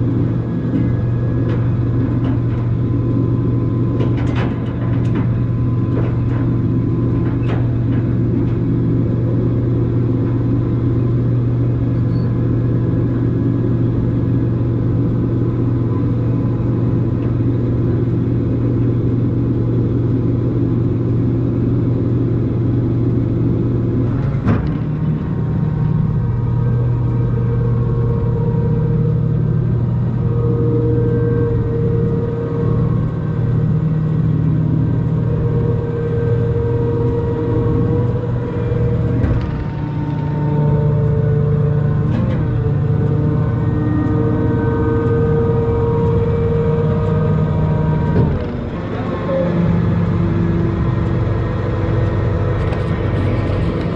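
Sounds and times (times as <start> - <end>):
vehicle engine droning: 0.0 - 53.9.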